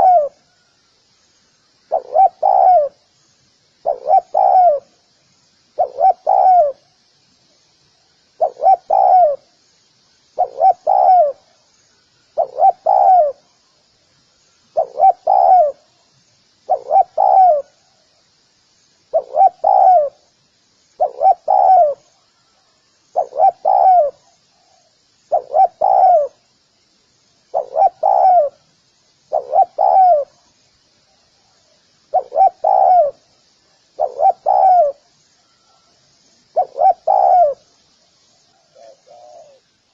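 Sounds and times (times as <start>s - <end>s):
dove cooing: 0.0s - 0.4s, 1.9s - 3.0s, 3.8s - 4.9s, 5.8s - 6.8s, 8.4s - 9.4s, 10.4s - 11.5s, 12.4s - 13.4s, 14.8s - 15.9s, 16.7s - 17.8s, 19.1s - 20.3s, 21.0s - 22.2s, 23.1s - 26.4s, 27.5s - 28.6s, 29.3s - 30.4s, 32.1s - 33.3s, 34.0s - 35.8s, 36.5s - 37.7s, 38.5s - 39.7s.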